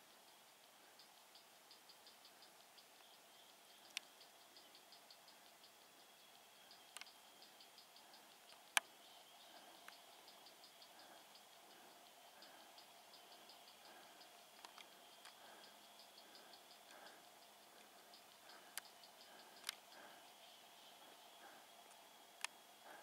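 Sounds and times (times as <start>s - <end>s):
insects chirping: 0.0s - 23.0s
thin high steady buzz: 0.0s - 23.0s
sharp clicks: 8.5s - 10.4s, 13.3s - 20.2s.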